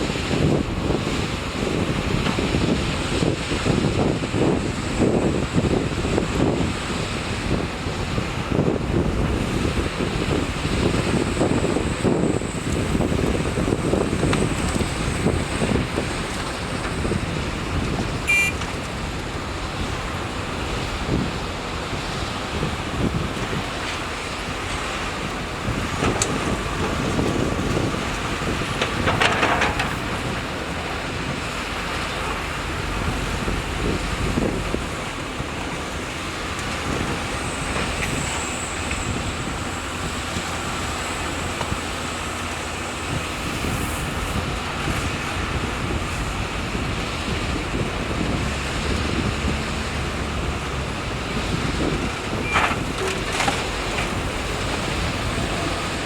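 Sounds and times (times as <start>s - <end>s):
excavator engine running: 0.0s - 56.0s
clattering: 25.9s - 30.5s.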